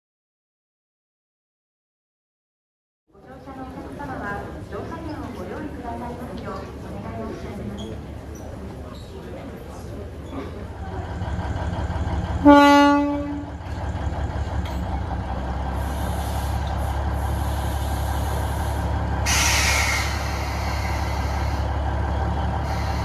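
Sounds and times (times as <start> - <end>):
locomotive engine running: 9.4 - 23.0
locomotive horn blast: 12.4 - 13.7
air hissing: 15.8 - 21.8, 22.6 - 23.0.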